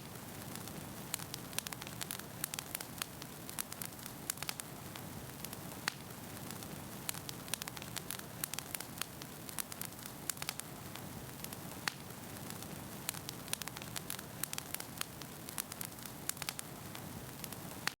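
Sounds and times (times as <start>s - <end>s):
fire crackling and popping: 0.0s - 18.0s
wood fire burning: 0.0s - 18.0s.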